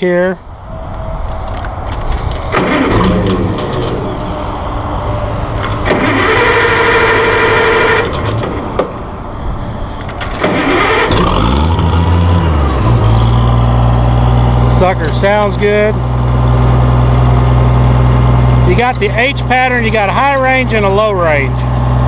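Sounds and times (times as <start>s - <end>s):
steady whine: 0.5s - 22.0s
engine starter cranking: 2.0s - 4.3s, 5.6s - 8.7s, 10.0s - 13.1s
engine idling: 2.4s - 22.0s.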